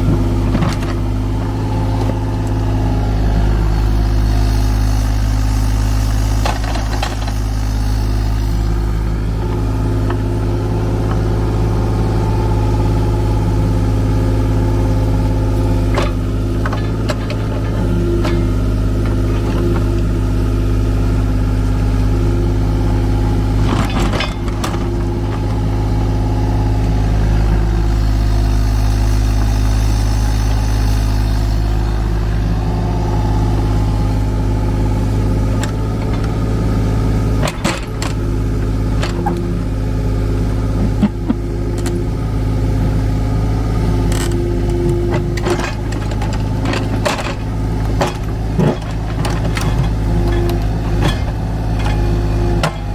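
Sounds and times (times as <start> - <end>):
excavator diesel engine running: 0.0 - 52.9
metal clanks and knocks: 15.8 - 20.1, 23.6 - 26.9, 35.1 - 39.5, 44.1 - 52.9.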